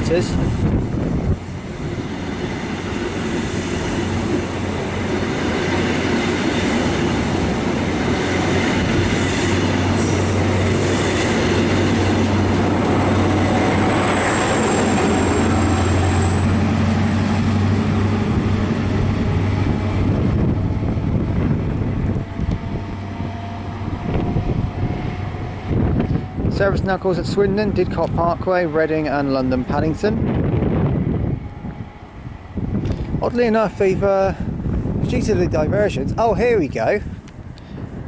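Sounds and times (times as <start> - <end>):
diesel engine drone: 0.0 - 35.0
train wheels rolling on rails: 0.0 - 35.5
high wheel squeal: 14.1 - 19.2.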